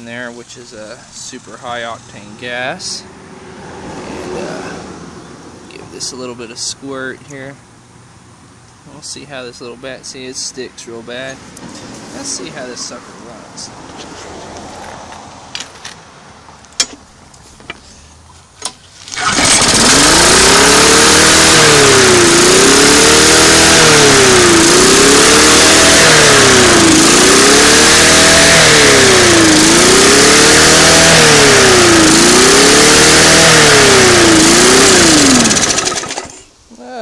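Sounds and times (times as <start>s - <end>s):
lawn mower engine running: 19.0s - 36.6s.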